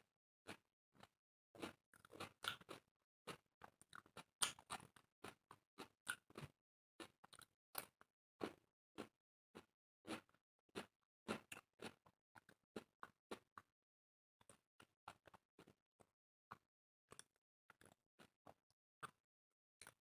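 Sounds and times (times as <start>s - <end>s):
people chewing food: 0.5s - 13.7s, 14.4s - 19.2s, 19.8s - 20.0s.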